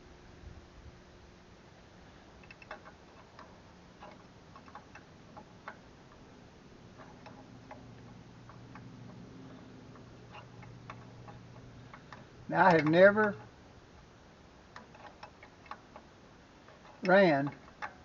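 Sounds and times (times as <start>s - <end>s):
low steady hum: 0.0s - 18.0s
hand tools tapping metal: 6.9s - 13.6s, 14.7s - 18.0s.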